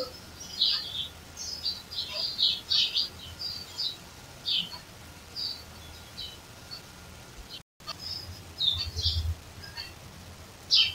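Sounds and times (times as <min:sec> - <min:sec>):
birds chirping: 0:00.0 - 0:10.9.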